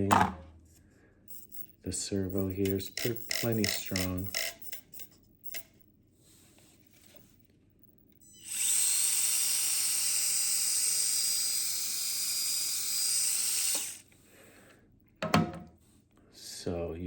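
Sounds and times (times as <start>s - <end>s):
small electric motor whine: 8.2s - 14.1s.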